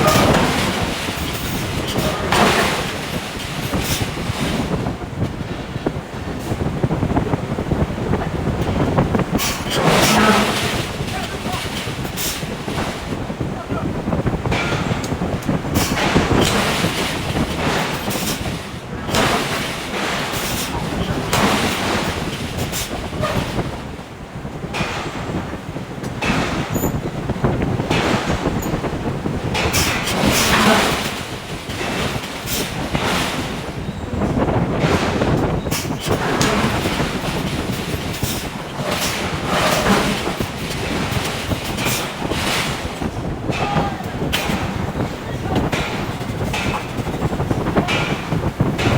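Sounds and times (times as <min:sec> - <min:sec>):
hydraulic forging hammer strokes: 0:00.0 - 0:04.9, 0:08.6 - 0:13.2
shop machinery rumble: 0:00.0 - 0:48.9.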